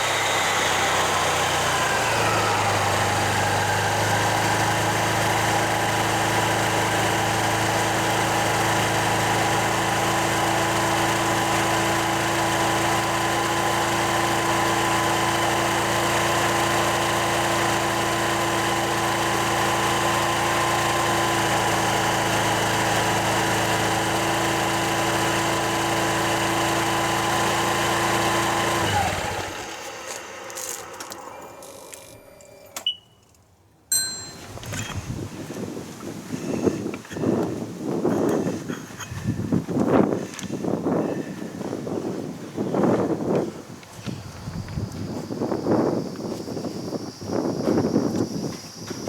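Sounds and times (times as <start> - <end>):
scooter engine idling: 0.0 - 32.6.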